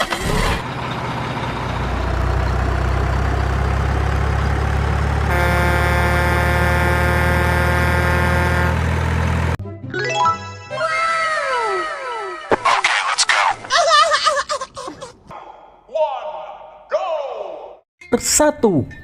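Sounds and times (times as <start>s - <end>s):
diesel truck engine idling: 0.1s - 9.6s
truck air horn blast: 5.2s - 9.0s.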